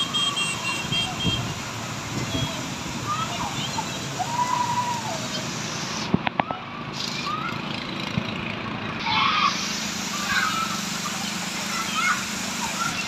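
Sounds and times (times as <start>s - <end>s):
rain hissing: 0.0s - 7.6s, 9.0s - 13.0s.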